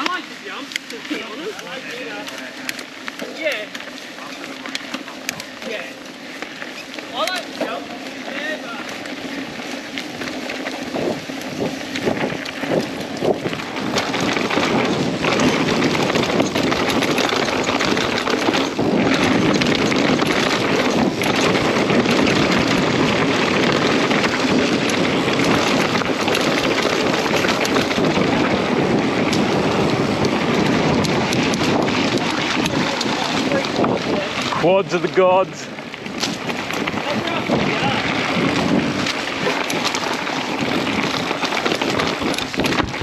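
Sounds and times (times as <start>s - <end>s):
bike clicks and rattles: 0.0s - 43.0s
bike tyres rolling on dirt: 0.0s - 43.0s
wind rushing over microphone: 5.2s - 43.0s.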